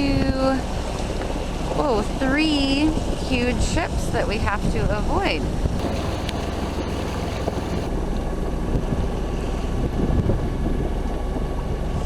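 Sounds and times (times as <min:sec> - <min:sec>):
steady low rumble: 0:05.8 - 0:07.9.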